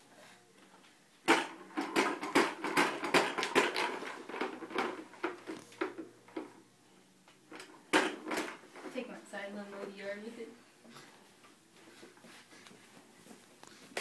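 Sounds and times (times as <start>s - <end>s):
plastic toy lawnmower clacking: 1.3s - 6.5s.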